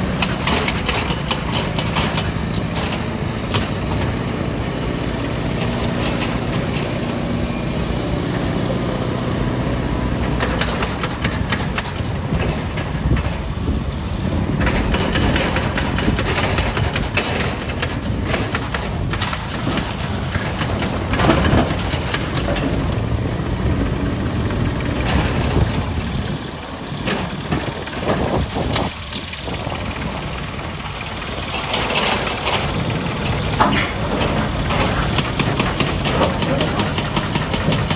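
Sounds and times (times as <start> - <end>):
diesel engine running: 0.0 - 37.9
rapid clatter of knocks: 0.1 - 4.3, 10.1 - 13.8, 14.4 - 23.1, 26.9 - 37.9.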